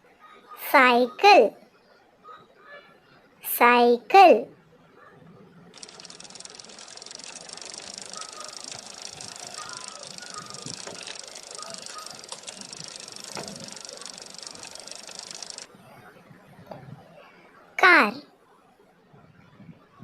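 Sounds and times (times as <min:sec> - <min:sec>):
bicycle chain ticking and rattling: 0:05.8 - 0:15.7.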